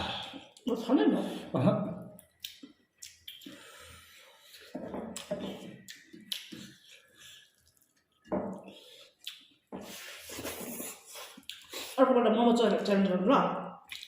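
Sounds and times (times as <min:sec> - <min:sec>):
chewing with mouth clicks: 0:02.2 - 0:12.0.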